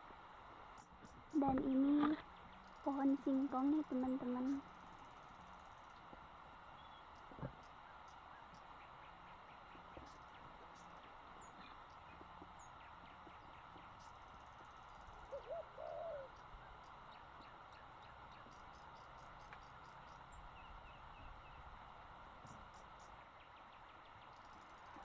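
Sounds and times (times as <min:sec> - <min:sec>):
faint outdoor hiss: 0:00.0 - 0:25.0
insect ticking: 0:00.7 - 0:15.4, 0:16.3 - 0:20.4, 0:24.0 - 0:25.0
bird calling: 0:06.7 - 0:21.7.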